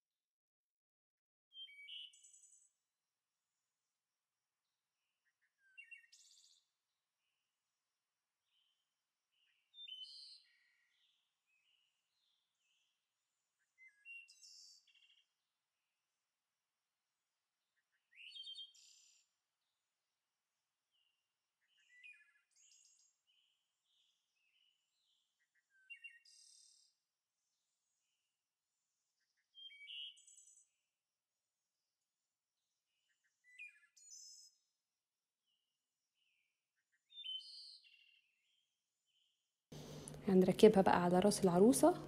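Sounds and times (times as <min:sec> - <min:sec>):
faint bird chirps: 0:01.5 - 0:02.8, 0:08.5 - 0:15.3, 0:17.7 - 0:19.3, 0:20.9 - 0:27.0, 0:29.2 - 0:30.9, 0:32.9 - 0:34.7, 0:36.2 - 0:40.2
faint bird twittering: 0:29.5 - 0:30.6, 0:37.1 - 0:38.2.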